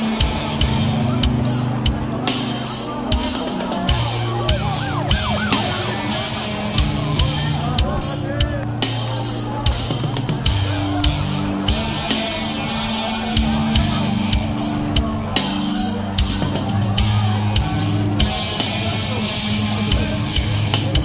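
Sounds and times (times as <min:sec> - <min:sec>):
loud low guitar notes: 0:00.0 - 0:21.0.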